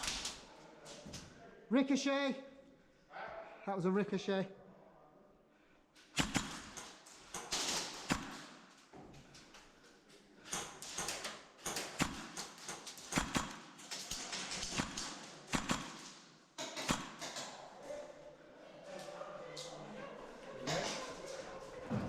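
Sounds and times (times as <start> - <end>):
pellets striking walls and doors: 6.1 - 9.2, 10.5 - 17.6
airsoft shots cracking: 6.2 - 8.7, 10.6 - 17.4.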